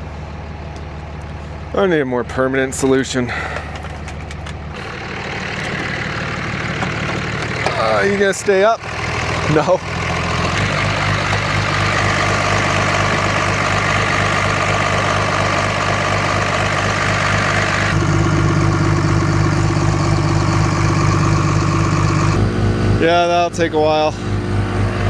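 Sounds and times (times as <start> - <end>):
truck engine idling: 0.0 - 25.0
air compressor running: 4.7 - 25.0.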